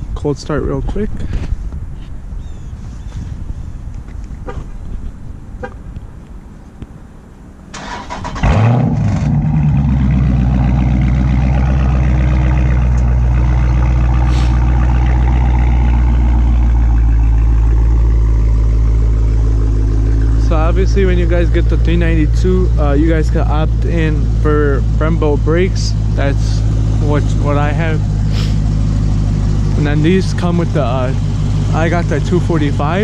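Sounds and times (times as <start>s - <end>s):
car engine revving and idling: 7.8s - 33.0s.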